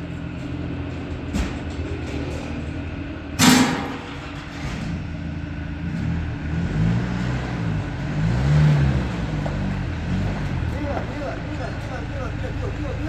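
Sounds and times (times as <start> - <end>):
vehicle engine humming: 0.0 - 13.0
loud sharp bang: 3.4 - 4.4.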